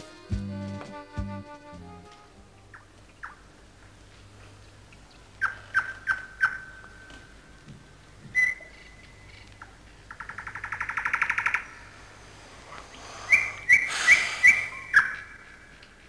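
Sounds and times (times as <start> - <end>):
bird trill: 13.3 - 15.6
short high bird chirps: 13.4 - 15.3.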